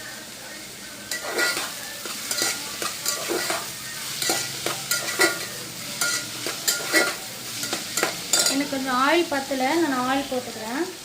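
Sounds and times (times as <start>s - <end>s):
food sizzling in oil: 0.0s - 11.0s
utensil scraping a pan: 1.1s - 8.7s.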